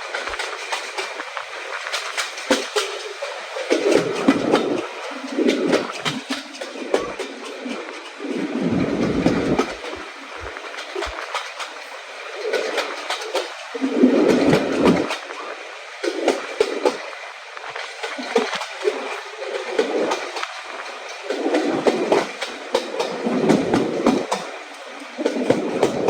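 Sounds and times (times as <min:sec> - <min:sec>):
train wheels clattering: 0:00.0 - 0:15.2, 0:17.8 - 0:26.0.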